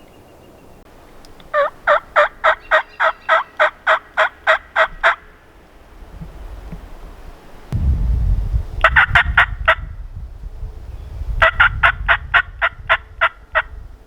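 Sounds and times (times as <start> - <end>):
turkey yelping: 1.5 - 5.4
wind rumble on microphone: 5.8 - 14.0.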